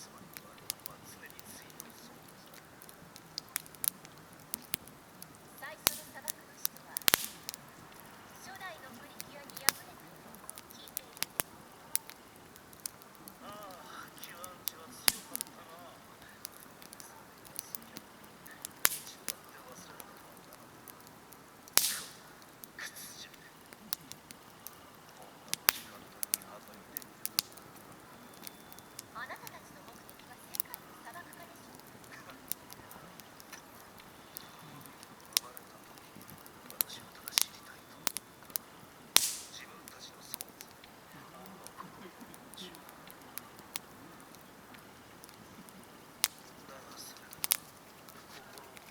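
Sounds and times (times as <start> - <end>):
campfire crackling and popping: 0.0 - 48.9
faint fire hiss: 0.0 - 48.9
brief hiss: 21.8 - 23.2, 39.2 - 39.8.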